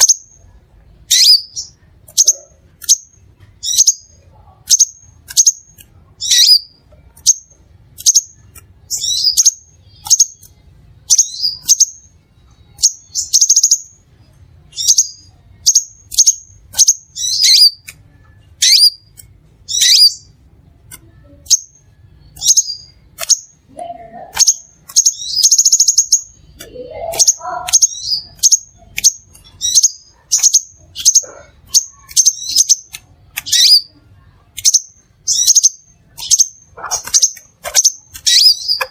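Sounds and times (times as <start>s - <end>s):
bird chirping: 0.0s - 38.9s.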